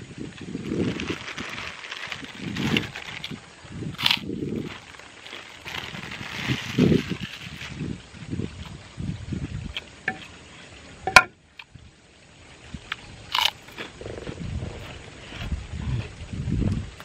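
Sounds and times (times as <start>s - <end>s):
man chewing food: 12.9s - 17.0s.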